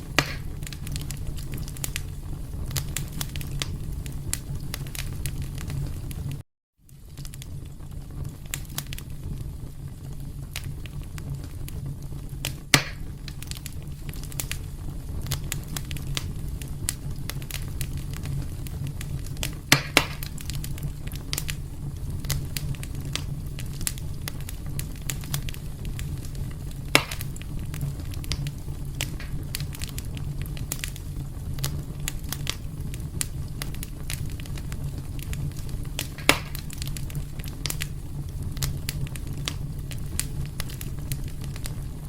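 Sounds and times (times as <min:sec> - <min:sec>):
fire crackling in a fireplace: 0:00.0 - 0:42.0
sharp wood pops: 0:00.2 - 0:00.6, 0:12.7 - 0:13.1, 0:19.7 - 0:20.4, 0:26.9 - 0:27.3, 0:29.0 - 0:29.4, 0:36.0 - 0:36.8.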